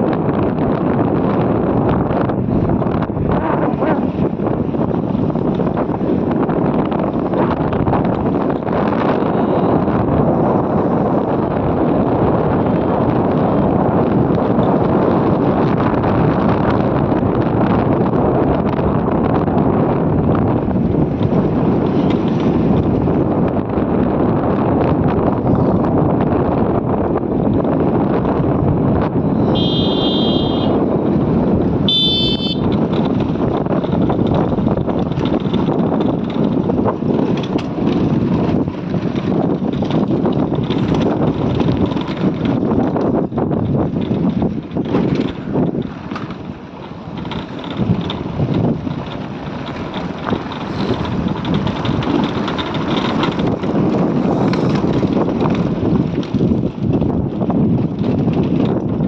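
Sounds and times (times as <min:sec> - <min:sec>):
motorcycle riding: 0:00.0 - 0:59.0
road noise: 0:00.0 - 0:59.0
wind on microphone: 0:00.0 - 0:59.0
knocks and rattles: 0:21.0 - 0:23.1, 0:31.9 - 0:59.0
vehicle horn beeping: 0:29.4 - 0:30.8, 0:31.8 - 0:32.8.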